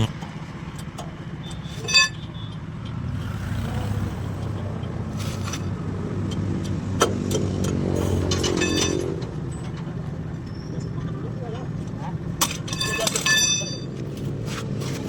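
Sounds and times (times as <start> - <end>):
metallic clink: 8.3 - 9.2, 12.4 - 13.9.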